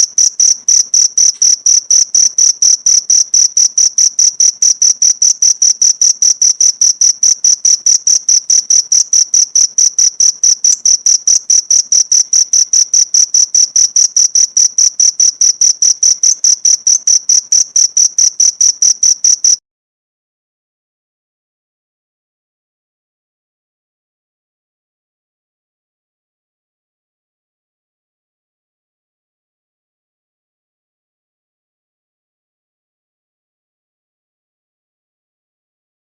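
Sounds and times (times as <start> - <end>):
cricket chirping: 0.0 - 19.6.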